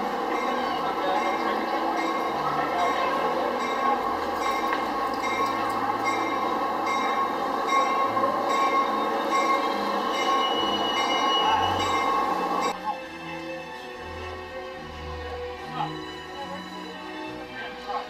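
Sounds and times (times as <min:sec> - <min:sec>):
commuter train running: 0:00.0 - 0:18.0
wheel squeal: 0:08.9 - 0:12.7.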